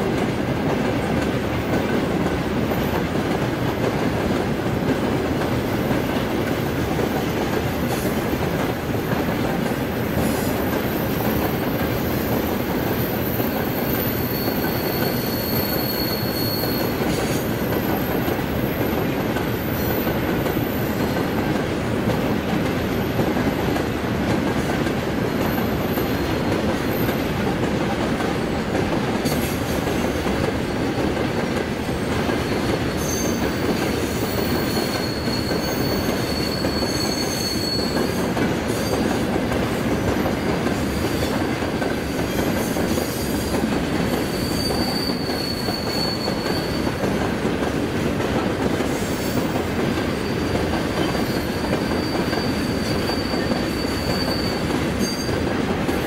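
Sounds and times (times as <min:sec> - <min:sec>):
train wheels rumbling on rail: 0:00.0 - 0:56.0
faint wheel squeal: 0:13.4 - 0:17.4, 0:34.2 - 0:39.0, 0:44.2 - 0:47.0, 0:50.2 - 0:55.3.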